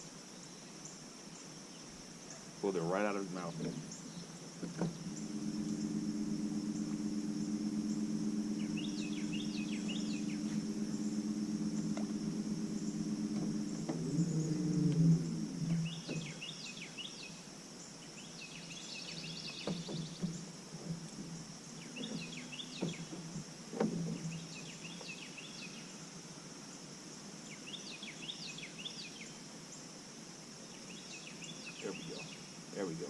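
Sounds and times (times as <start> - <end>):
insect drone: 0.0 - 33.0
bird chirping: 1.8 - 20.5.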